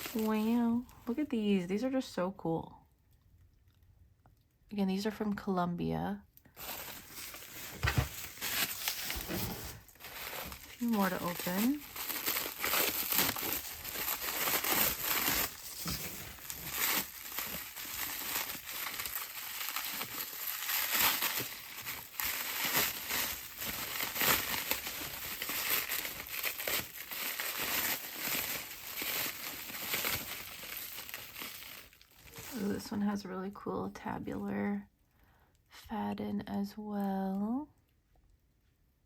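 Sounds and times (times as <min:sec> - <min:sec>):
wrapping crumpling and crinkling: 0:00.0 - 0:01.3, 0:06.5 - 0:33.3.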